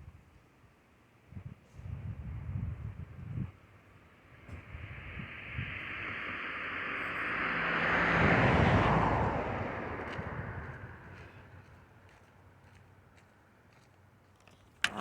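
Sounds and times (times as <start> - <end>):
vehicle driving past: 4.6 - 11.8.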